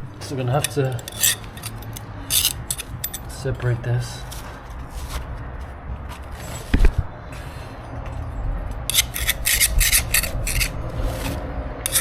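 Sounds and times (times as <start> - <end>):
scraper scraping concrete floor: 8.9 - 12.0.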